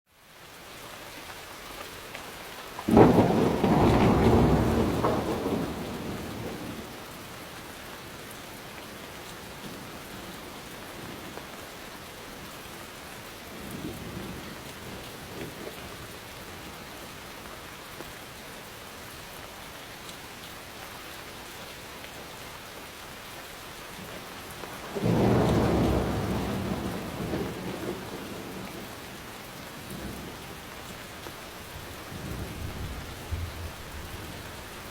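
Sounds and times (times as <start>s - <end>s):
steady rain: 0.1s - 34.9s
thunder rumbling: 2.9s - 6.9s, 24.8s - 29.2s, 31.5s - 34.9s.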